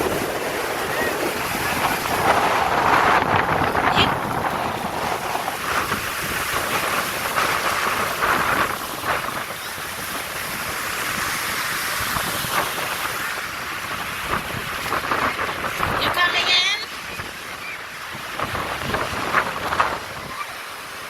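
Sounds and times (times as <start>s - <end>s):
ocean surf washing on beach: 0.0s - 21.0s
wind rumbling on microphone: 0.0s - 21.0s.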